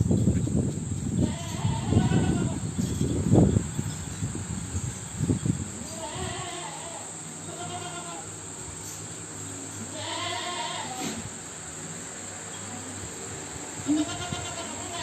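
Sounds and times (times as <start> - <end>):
goats bleating: 1.2 - 2.6, 5.9 - 8.3, 9.9 - 11.2, 13.8 - 15.0.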